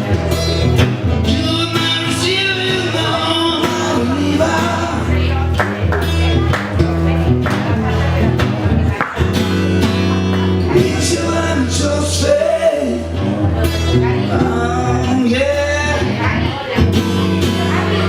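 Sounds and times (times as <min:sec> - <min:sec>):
live rock band playing: 0:00.0 - 0:18.0
person singing: 0:01.2 - 0:05.5, 0:10.6 - 0:16.8.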